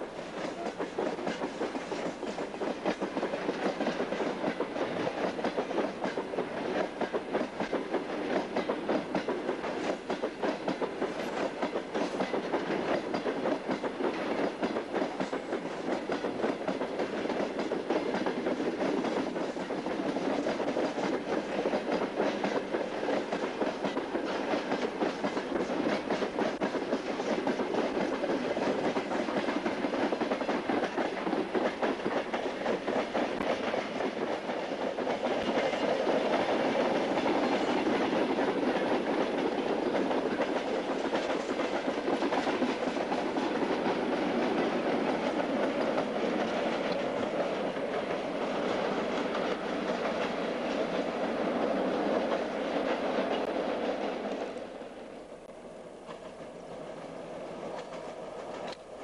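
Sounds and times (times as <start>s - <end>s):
wheels clacking over rail joints: 0.0s - 55.0s, 56.0s - 59.0s
freight train rolling past: 0.0s - 59.0s.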